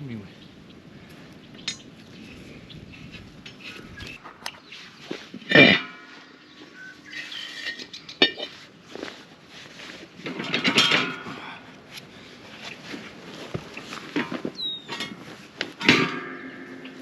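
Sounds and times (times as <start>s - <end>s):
metal tools clinking: 5.4s - 6.2s, 7.1s - 9.1s, 10.2s - 11.4s, 13.8s - 17.0s.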